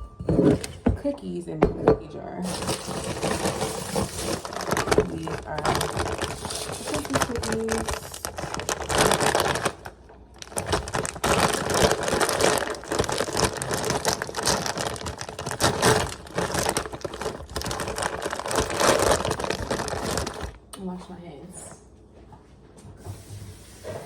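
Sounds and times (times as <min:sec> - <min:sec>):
cookies clattering into jar: 0:01.7 - 0:20.6
plastic packaging rustling: 0:02.0 - 0:20.7.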